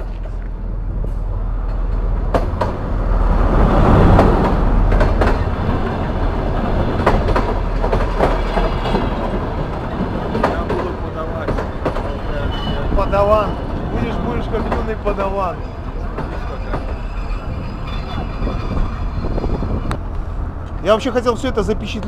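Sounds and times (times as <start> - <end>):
train rumble: 0.0 - 22.0
wheels clicking over rail joints: 4.2 - 21.0.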